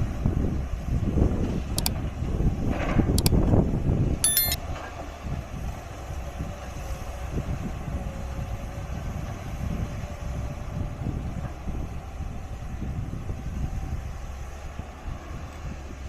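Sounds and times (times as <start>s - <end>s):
high-pitched squeak: 4.2s - 4.6s.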